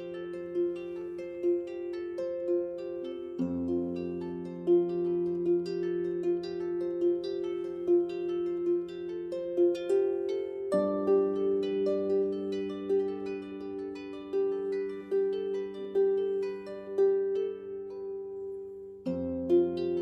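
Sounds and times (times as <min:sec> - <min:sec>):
harp playing slow melody: 0:00.0 - 0:20.0.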